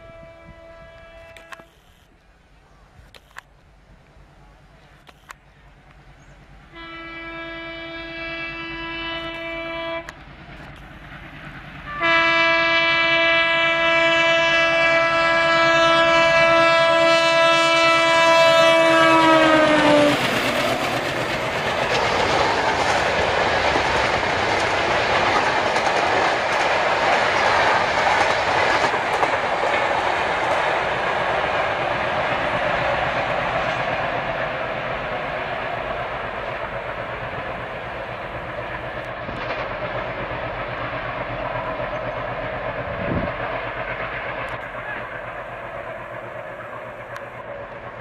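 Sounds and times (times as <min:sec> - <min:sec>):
locomotive horn blast: 0:00.0 - 0:01.9, 0:06.7 - 0:10.2, 0:11.9 - 0:20.3
train wheels clattering: 0:18.4 - 0:48.0.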